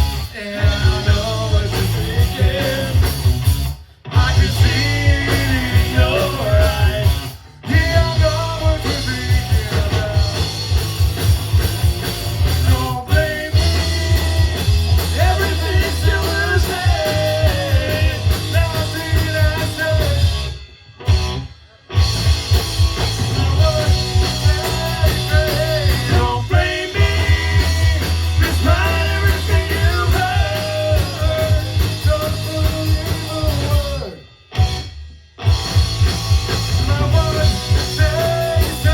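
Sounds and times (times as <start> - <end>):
punk rock band playing: 0.0 - 38.9
person singing: 4.2 - 10.4, 12.7 - 20.3, 23.4 - 34.2.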